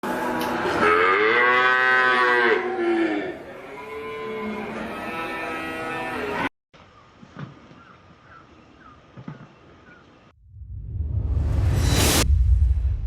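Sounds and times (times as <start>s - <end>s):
cow mooing: 0.8s - 6.5s.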